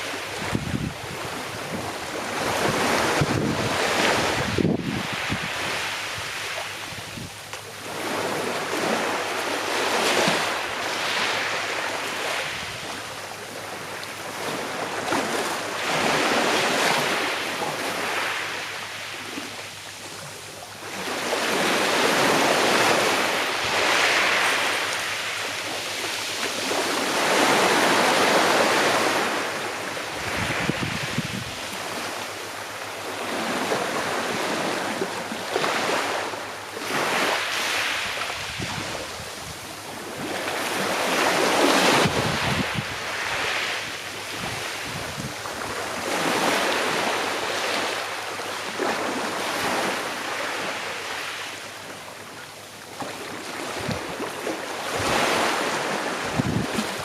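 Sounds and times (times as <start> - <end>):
small waves washing onto shore: 0.0 - 57.0.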